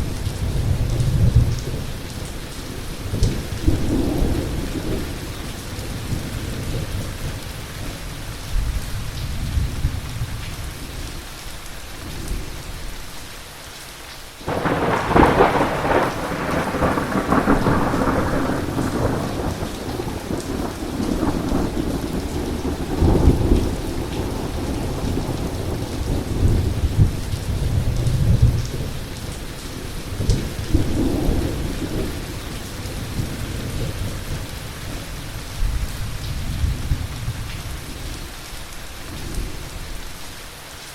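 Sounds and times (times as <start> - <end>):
heavy rain hiss: 0.0 - 40.9
thunder rumbling: 14.4 - 37.8
loud thunder crack: 14.5 - 27.2.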